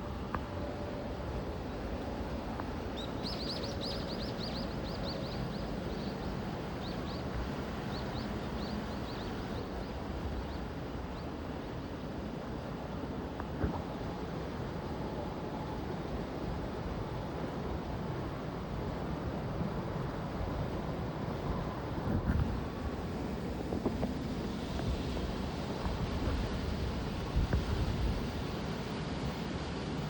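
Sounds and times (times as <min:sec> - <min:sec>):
wind: 0:00.0 - 0:30.0
bird chirping: 0:03.0 - 0:11.3.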